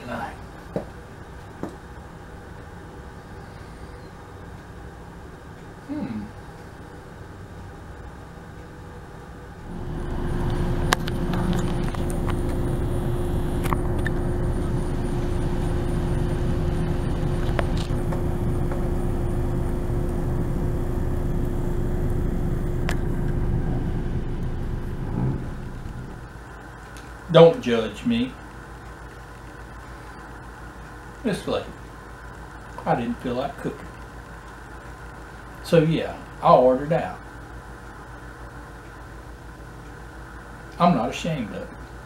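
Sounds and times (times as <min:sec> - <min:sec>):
car engine idling: 0:09.7 - 0:26.3
car engine starting: 0:09.7 - 0:26.3.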